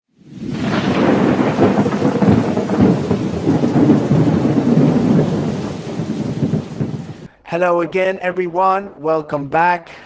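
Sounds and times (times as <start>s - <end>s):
rain falling: 0.2s - 7.3s
rumbling thunder: 0.2s - 7.3s.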